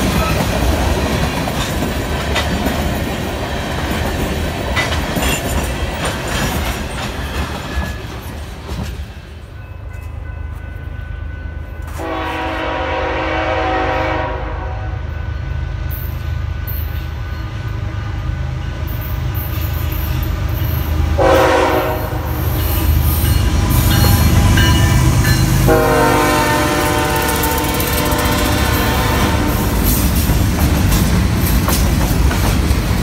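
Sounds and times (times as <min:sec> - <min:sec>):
train wheel clatter: 0:00.0 - 0:10.2, 0:26.5 - 0:33.0
locomotive air horn: 0:11.8 - 0:15.2, 0:21.2 - 0:22.6, 0:25.6 - 0:30.0.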